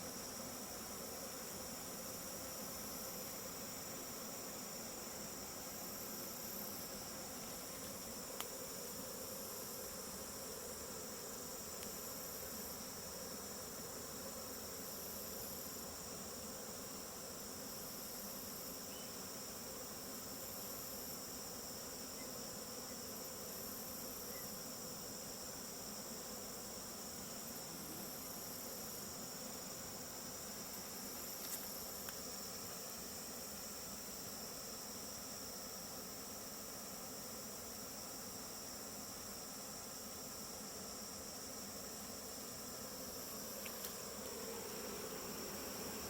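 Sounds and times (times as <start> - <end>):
bee swarm humming: 0.0 - 46.0
high insect trill: 0.0 - 46.0
faint click: 11.8 - 12.0.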